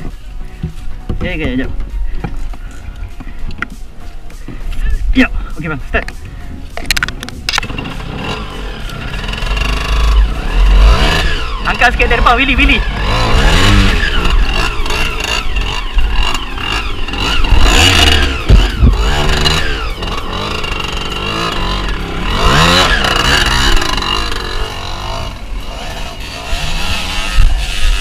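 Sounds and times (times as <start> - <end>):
motorcycle engine revving: 6.9 - 28.0.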